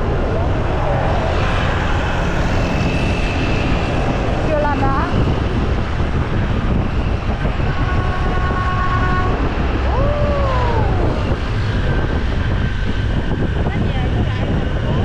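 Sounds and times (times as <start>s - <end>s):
wind and road noise: 0.0s - 15.0s
horn-like tone: 7.4s - 11.3s
rising and falling tone: 9.2s - 13.6s.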